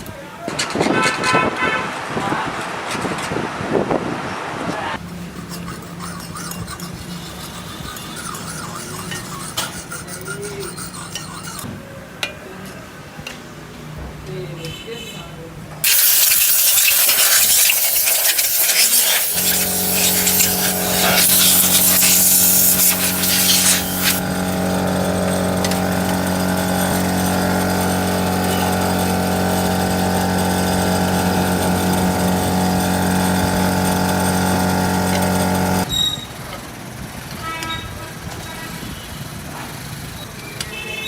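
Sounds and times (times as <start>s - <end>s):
loud harsh hissing: 15.8s - 35.9s
machine electric hum: 19.2s - 35.9s.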